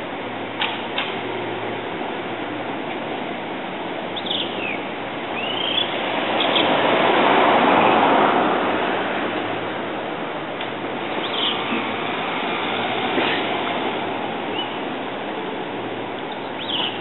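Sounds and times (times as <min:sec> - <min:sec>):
city traffic noise: 0:00.0 - 0:17.0
bird singing high phrases: 0:04.2 - 0:04.8, 0:05.4 - 0:06.6, 0:11.2 - 0:11.6, 0:14.5 - 0:14.8, 0:16.5 - 0:17.0
vehicle passing: 0:05.4 - 0:16.1.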